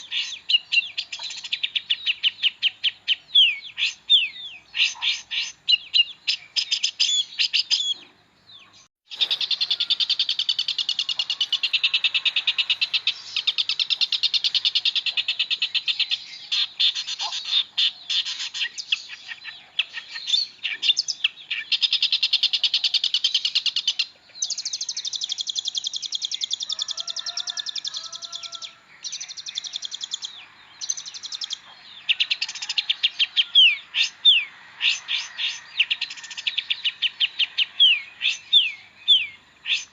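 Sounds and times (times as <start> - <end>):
bird singing chattering song: 0.0 - 39.9.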